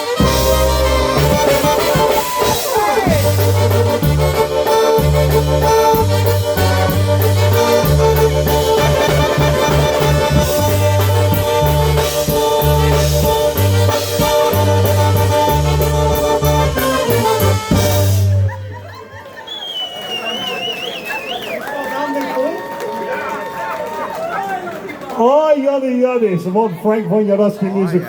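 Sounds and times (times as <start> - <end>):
bass line: 0.0 - 18.9
polka band playing: 0.0 - 19.4.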